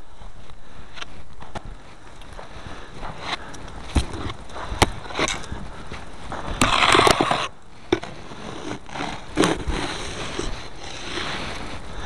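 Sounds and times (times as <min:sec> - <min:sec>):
snow scraper scraping snow: 0:06.2 - 0:12.0.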